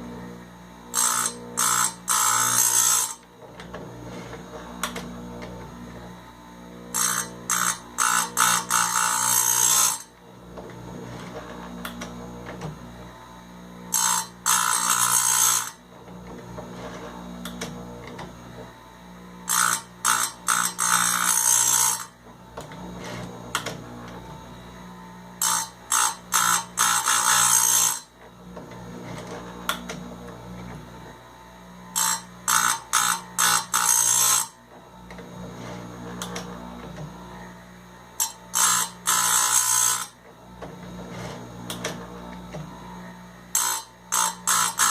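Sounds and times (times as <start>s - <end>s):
grinder motor hum: 0.0s - 44.9s
grinding wheel on chain cutters: 0.8s - 3.3s, 6.9s - 12.1s, 13.9s - 18.6s, 19.4s - 22.2s, 23.0s - 23.8s, 25.4s - 30.0s, 31.8s - 36.5s, 38.1s - 40.3s, 41.0s - 42.9s, 43.5s - 44.9s.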